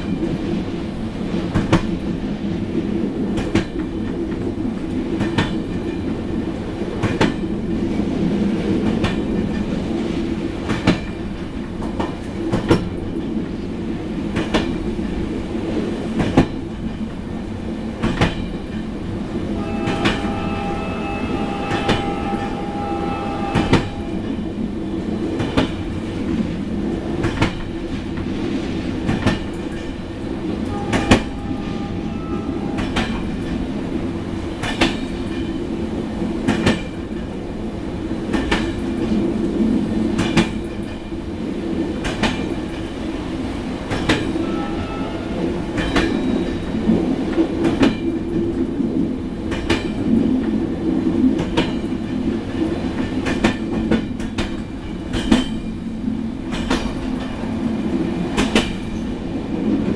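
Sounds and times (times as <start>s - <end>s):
train carriage rumbling on track: 0.0s - 59.9s.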